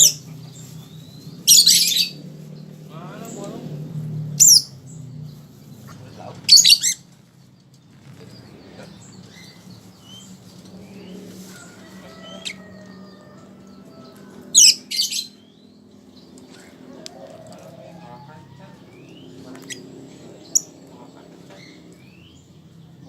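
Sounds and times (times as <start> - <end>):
lovebird shrill rapid calls: 1.4 - 2.2, 4.4 - 4.8, 6.5 - 7.0, 14.6 - 15.4.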